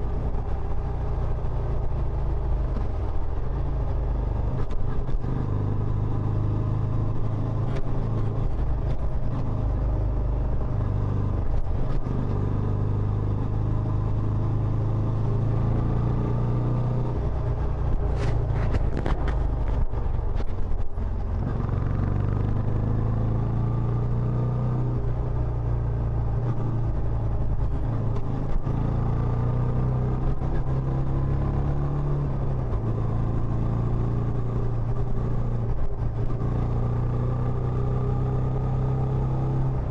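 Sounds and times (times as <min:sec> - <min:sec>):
motorcycle engine running: 0:00.0 - 0:24.2.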